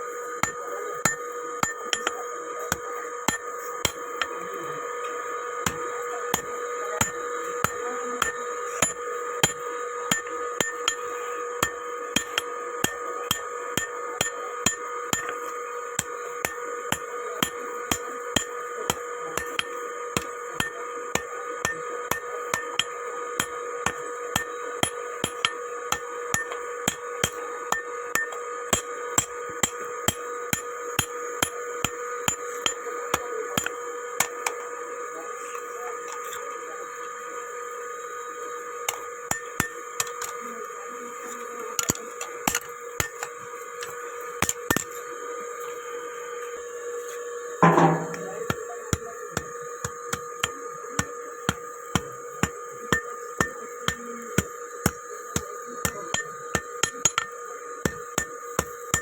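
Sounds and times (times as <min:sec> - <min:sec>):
steady ringing tone: 0:00.0 - 0:59.0
hammer striking metal on anvil: 0:47.6 - 0:49.0.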